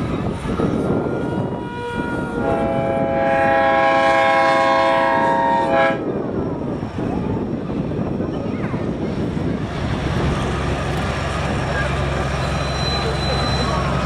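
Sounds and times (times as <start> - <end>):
train rumble: 0.0 - 14.0
train whistle blast: 1.1 - 6.0
soft short whistle tone: 12.6 - 13.8.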